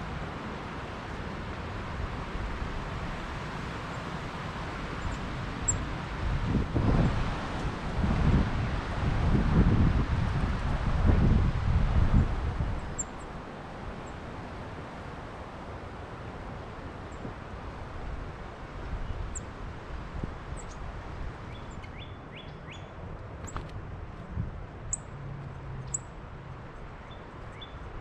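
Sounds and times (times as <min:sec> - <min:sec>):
wind buffeting microphone: 0:05.4 - 0:13.0
small birds chirping: 0:21.5 - 0:23.7, 0:27.0 - 0:27.9.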